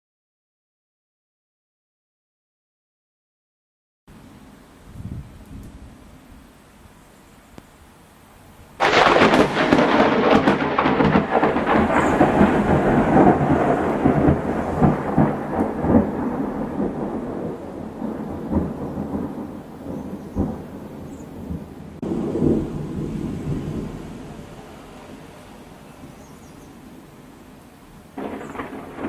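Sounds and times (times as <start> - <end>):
thunder crack and rumble: 8.8 - 24.7, 28.2 - 29.0.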